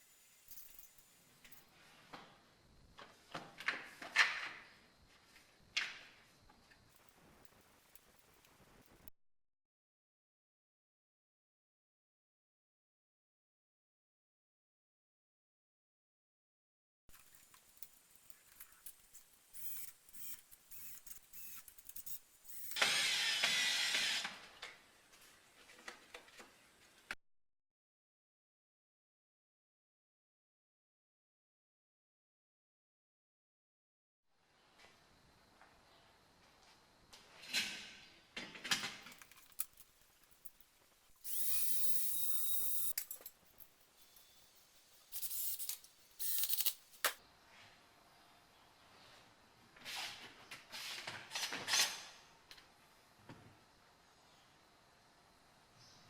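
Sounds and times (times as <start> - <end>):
handling clicks and scrapes: 17.1 - 22.8, 39.0 - 47.2
loud mechanical whirring: 19.6 - 24.2.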